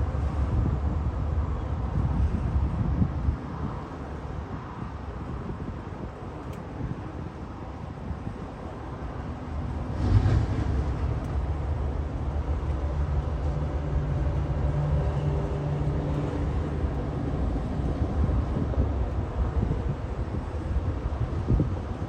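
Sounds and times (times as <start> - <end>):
diesel engine droning: 8.5 - 22.0.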